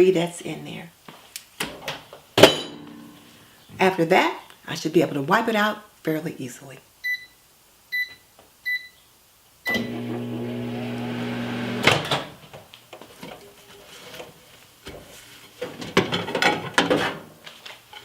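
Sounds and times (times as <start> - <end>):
microwave keypad beeps: 7.0 - 9.0, 9.7 - 9.9
microwave oven humming: 9.7 - 11.9.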